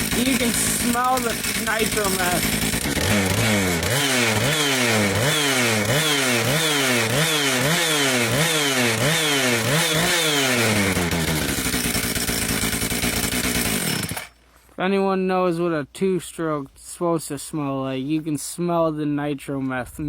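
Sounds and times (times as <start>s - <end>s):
chainsaw engine revving: 0.0s - 14.4s.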